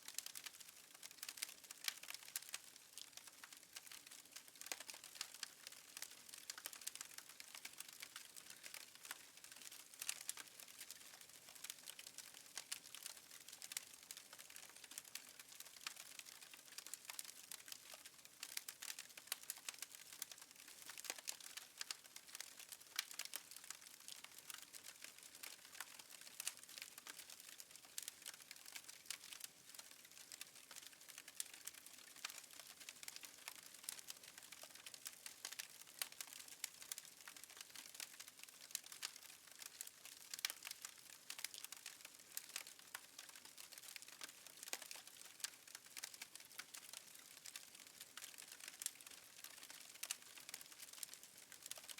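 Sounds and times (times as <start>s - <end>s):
wood fire crackling: 0.1s - 51.9s.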